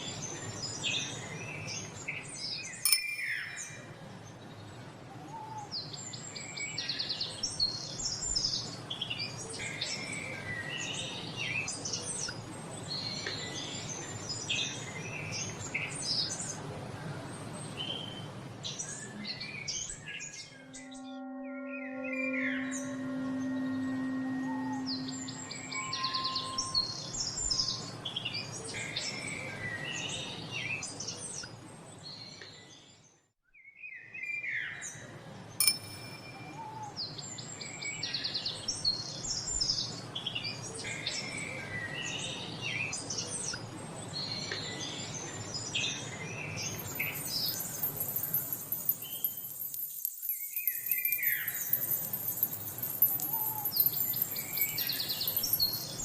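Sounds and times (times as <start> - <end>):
songbirds chirping and trilling: 36.4 - 56.0.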